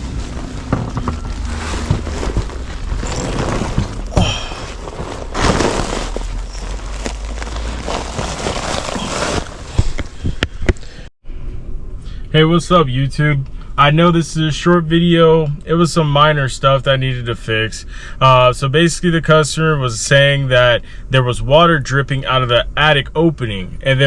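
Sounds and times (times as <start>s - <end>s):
low rumble: 0.0s - 10.4s
rustling and scraping: 0.0s - 11.1s.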